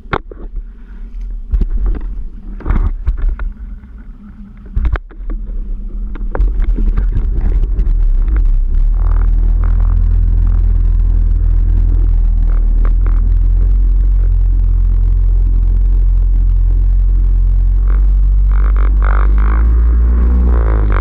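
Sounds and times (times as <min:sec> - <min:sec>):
jet ski engine running unevenly: 0:00.0 - 0:21.0
engine knocks: 0:04.6 - 0:14.8.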